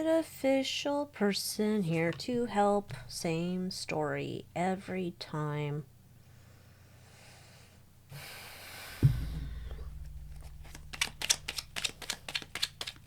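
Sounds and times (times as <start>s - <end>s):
thump: 9.0s - 10.7s
cards brushing and sliding: 10.4s - 13.0s
cards clicking while shuffled: 10.4s - 13.0s.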